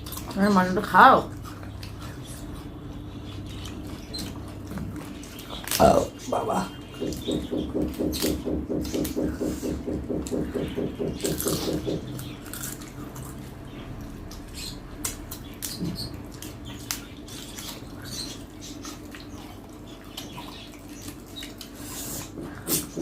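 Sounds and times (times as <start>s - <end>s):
chewing and lip-smacking: 0.0s - 0.4s, 7.0s - 22.9s
low pulsing hum: 0.2s - 17.2s.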